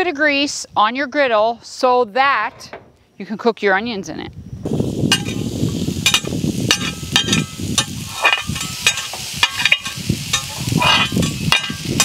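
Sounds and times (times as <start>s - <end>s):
onions sizzling on a griddle: 4.7s - 12.0s
crackles and pops of grease: 5.0s - 12.0s.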